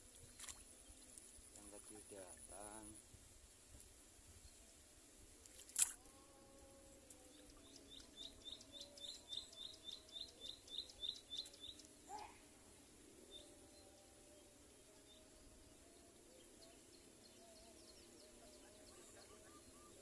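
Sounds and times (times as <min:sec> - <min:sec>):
faint outdoor background: 0:00.0 - 0:20.0
sharp click: 0:05.5 - 0:06.0
bird chirping: 0:07.3 - 0:12.4.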